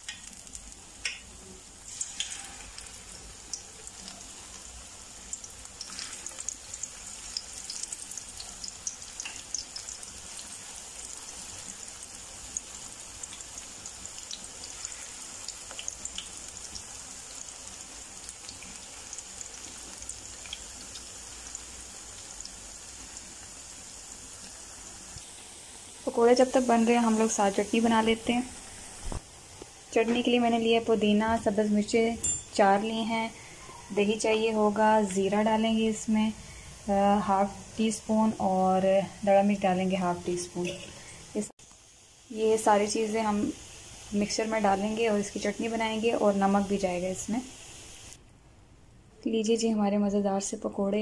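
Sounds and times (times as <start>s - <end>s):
oil crackling and popping: 0.0s - 23.6s
fritters sizzling in hot oil: 0.0s - 48.2s.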